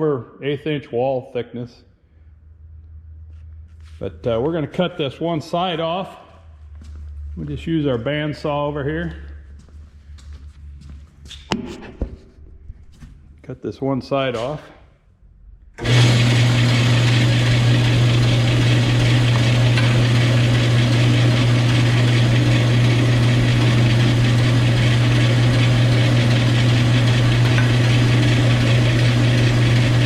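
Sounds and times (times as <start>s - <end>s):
metal-cutting bandsaw running: 15.8s - 30.0s.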